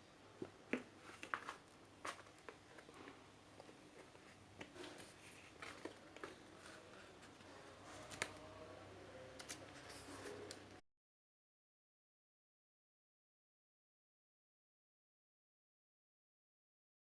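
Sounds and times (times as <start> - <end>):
plastic and paper rustling: 1.0 - 8.5, 9.4 - 10.7.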